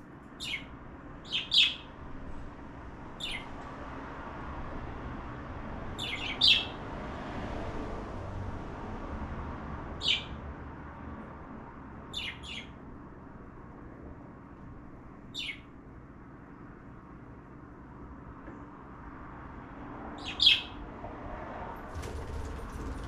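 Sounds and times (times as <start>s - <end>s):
cockatiel chirping: 0.4s - 1.8s, 3.2s - 3.5s, 6.0s - 6.7s, 10.0s - 10.3s, 12.1s - 12.7s, 15.3s - 15.6s, 20.2s - 20.8s.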